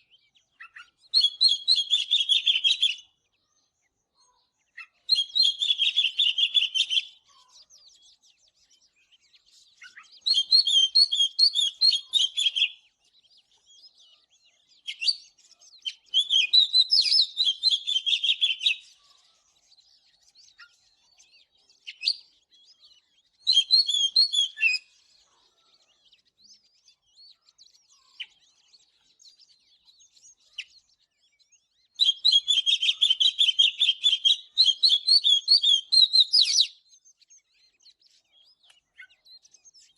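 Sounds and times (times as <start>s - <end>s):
bird singing rapid notes: 0.0s - 3.3s, 4.2s - 39.9s
bird chirps: 0.0s - 39.9s.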